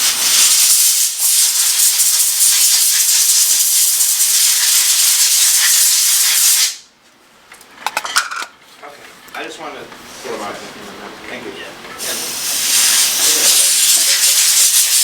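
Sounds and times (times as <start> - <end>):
compressed air hissing: 0.0 - 6.9, 12.0 - 15.0.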